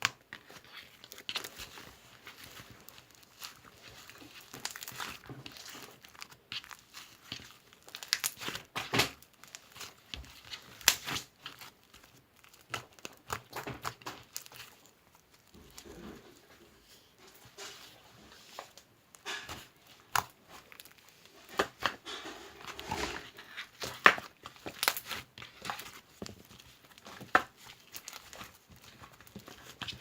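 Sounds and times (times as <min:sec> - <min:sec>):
material crinkling and crackling: 0:00.0 - 0:30.0.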